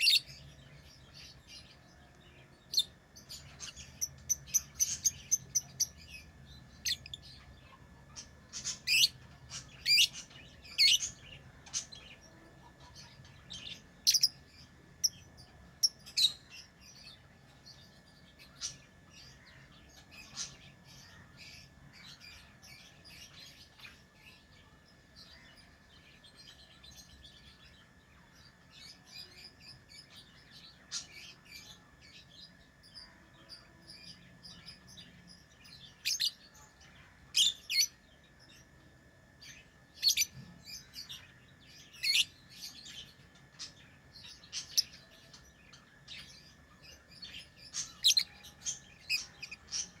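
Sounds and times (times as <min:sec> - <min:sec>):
lovebirds chirping: 0:00.0 - 0:23.9, 0:39.4 - 0:50.0.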